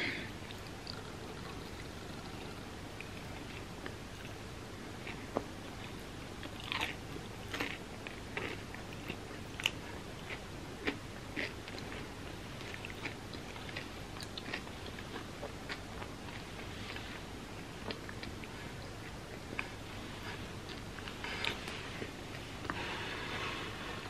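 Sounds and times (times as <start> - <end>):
faint steady hiss: 0.0 - 24.0
chewing crunchy candy bar: 5.0 - 22.2.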